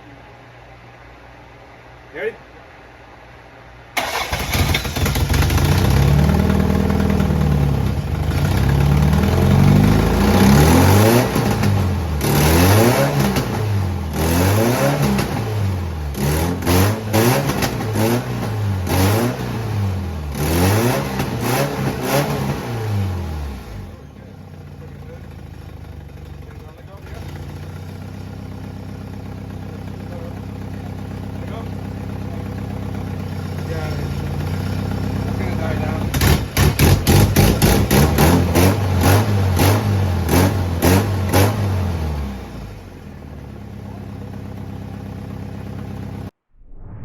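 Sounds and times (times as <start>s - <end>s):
car engine starting and revving: 4.0s - 24.0s, 27.0s - 29.3s, 32.2s - 46.3s.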